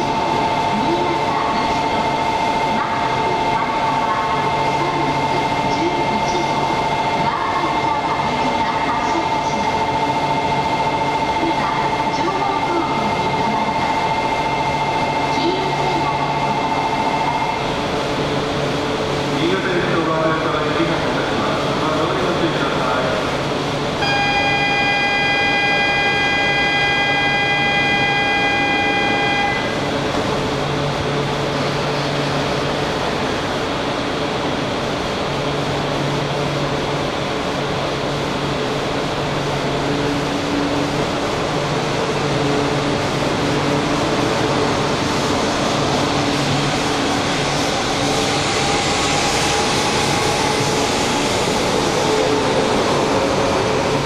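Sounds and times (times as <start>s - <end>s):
train humming drone: 0.0s - 54.0s
train rising whine: 22.8s - 54.0s
electronic departure signal: 24.0s - 29.9s.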